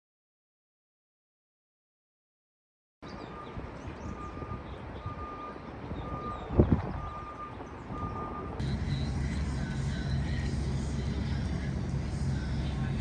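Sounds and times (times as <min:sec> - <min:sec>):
vehicle reversing beeper: 0:03.1 - 0:12.9
low rumble: 0:08.6 - 0:13.0.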